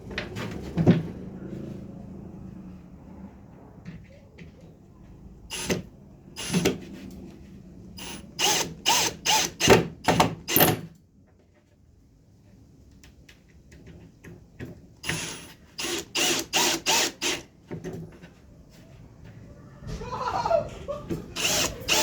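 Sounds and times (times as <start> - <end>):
power driver driving screws: 5.5 - 6.8, 8.0 - 10.8, 15.0 - 17.5, 21.4 - 22.0.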